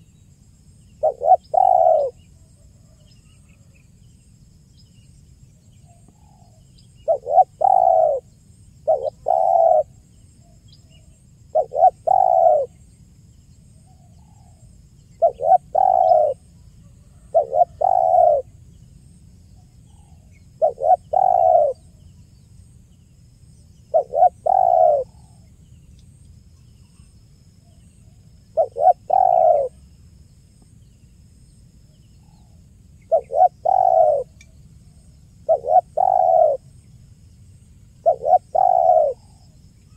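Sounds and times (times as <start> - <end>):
dove cooing: 1.0 - 2.2, 7.0 - 10.0, 11.5 - 12.8, 15.2 - 18.5, 20.1 - 21.9, 23.9 - 25.4, 28.6 - 29.8, 33.0 - 34.4, 35.4 - 36.7, 38.0 - 39.4.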